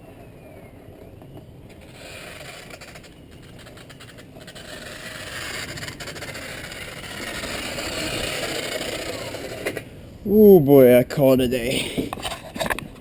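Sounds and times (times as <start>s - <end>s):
rubbing and scraping noise: 1.7s - 9.9s.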